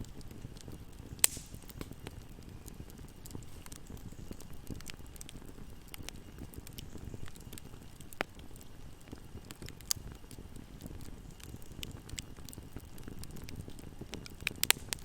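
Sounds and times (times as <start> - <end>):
fire crackling and popping: 0.0 - 15.0
low rumble of fire flames: 0.0 - 15.0.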